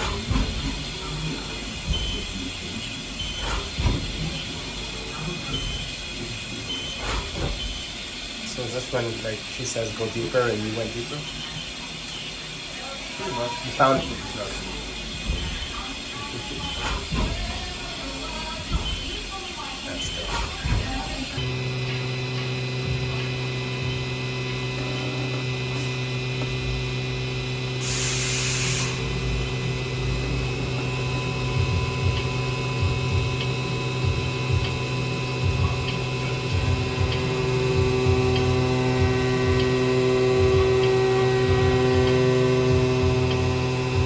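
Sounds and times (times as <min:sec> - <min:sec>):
electric motor humming: 0:00.0 - 0:44.0
air blast hiss: 0:27.8 - 0:29.3.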